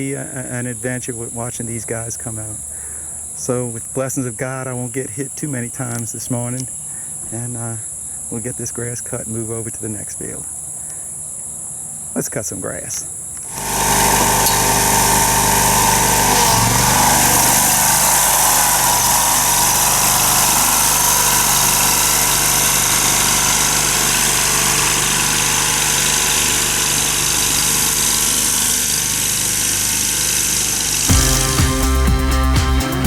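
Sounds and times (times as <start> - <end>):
lawn mower cutting grass: 13.4 - 33.0.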